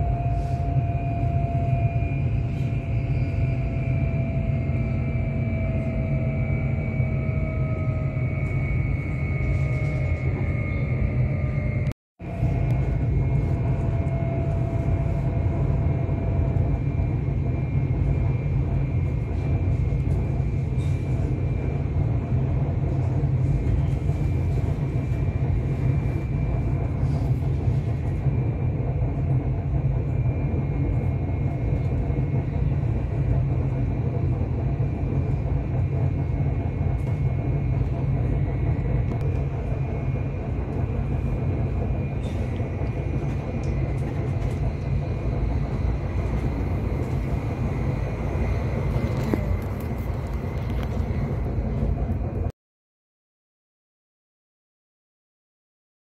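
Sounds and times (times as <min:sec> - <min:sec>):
faint high whine: 0:00.0 - 0:22.1
train wheels rumbling on track: 0:00.0 - 0:52.5.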